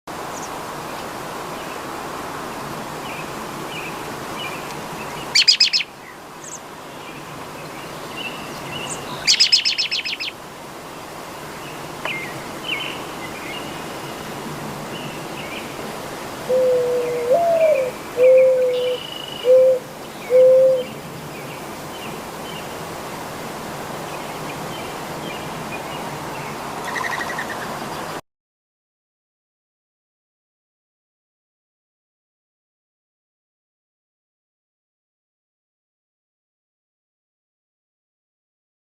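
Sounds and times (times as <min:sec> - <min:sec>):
loud rapid bird trills: 0:05.3 - 0:06.6, 0:08.8 - 0:10.4, 0:26.8 - 0:27.7
thin bird chirps: 0:05.4 - 0:06.6, 0:08.8 - 0:10.3
dove cooing: 0:16.4 - 0:20.9.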